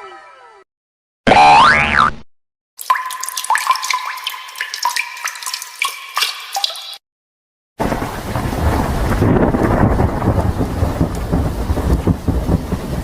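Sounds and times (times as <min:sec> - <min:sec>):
pitched water drips plinking: 0:02.8 - 0:07.0
rain and thunder rumble: 0:07.8 - 0:13.0.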